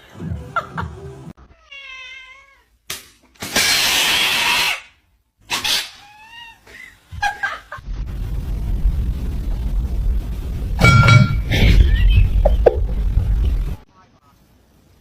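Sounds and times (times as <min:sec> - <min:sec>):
cat hissing: 0:03.4 - 0:06.6
cat yowling: 0:05.6 - 0:06.6
low rumble: 0:07.8 - 0:13.9.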